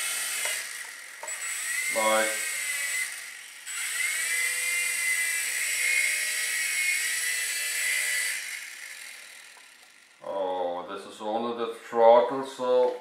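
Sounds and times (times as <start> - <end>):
small electric rotors whirring: 0.0 - 10.4.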